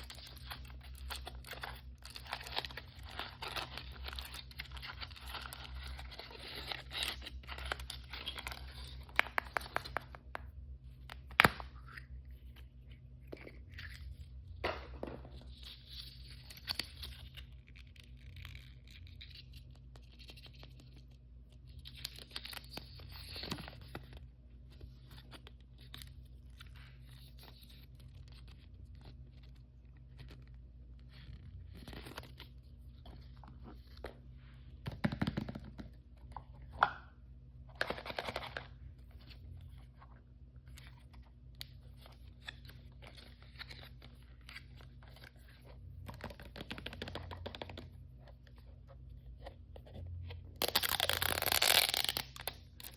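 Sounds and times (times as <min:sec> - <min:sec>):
packaging crinkling and tearing: 0:00.0 - 0:10.2, 0:37.7 - 0:38.7, 0:50.6 - 0:52.9.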